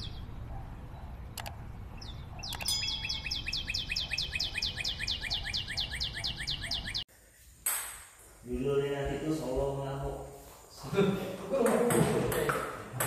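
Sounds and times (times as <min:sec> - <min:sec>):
bird chirping rapidly: 0:00.0 - 0:07.1
sharp clicks: 0:01.4 - 0:01.6, 0:02.4 - 0:02.7.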